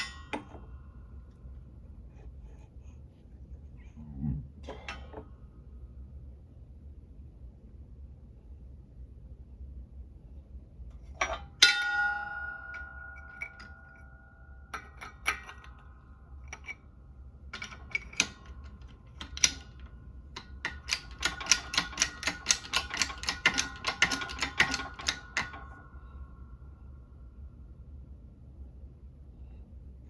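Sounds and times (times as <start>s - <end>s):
faint metallic ring: 0.0s - 2.9s, 11.0s - 18.7s
metallic tool clicks: 17.6s - 25.6s.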